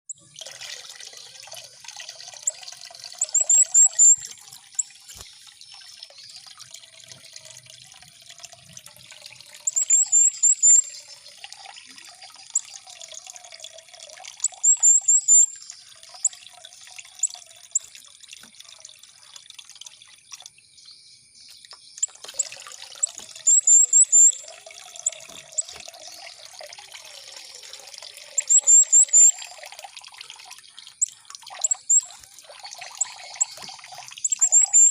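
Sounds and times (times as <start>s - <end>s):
trickling dripping water: 0.1s - 34.9s
songbird trilling: 3.2s - 4.9s, 9.7s - 11.1s, 14.4s - 16.4s, 21.9s - 26.2s, 28.3s - 29.5s, 31.6s - 34.9s.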